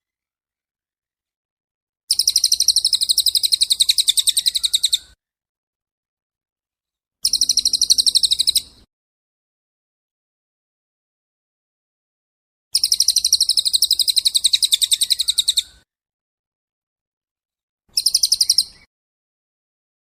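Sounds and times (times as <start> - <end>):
songbird high trill: 2.1 - 5.2, 7.2 - 8.8, 12.8 - 15.8, 17.9 - 18.9.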